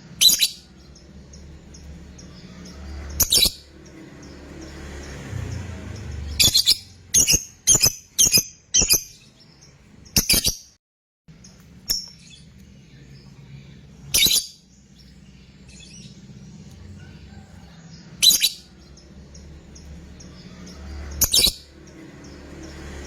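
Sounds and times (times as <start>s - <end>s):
lovebird shrill chirps: 0.2s - 1.0s, 3.0s - 3.7s, 6.2s - 9.4s, 10.1s - 10.8s, 14.1s - 14.7s, 18.2s - 18.9s, 20.2s - 21.7s.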